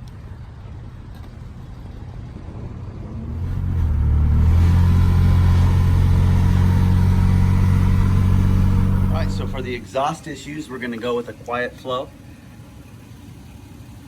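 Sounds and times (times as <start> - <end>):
vehicle engine droning: 2.4 - 10.1.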